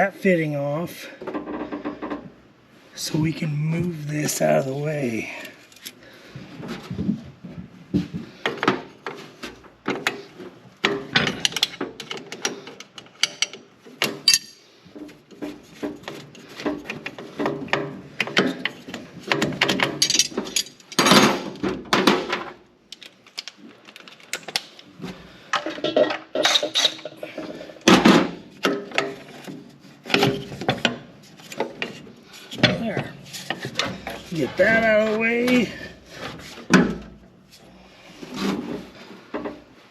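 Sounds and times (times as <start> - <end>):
metal clinks: 14.2 - 14.6
wrench scraping: 14.2 - 14.6.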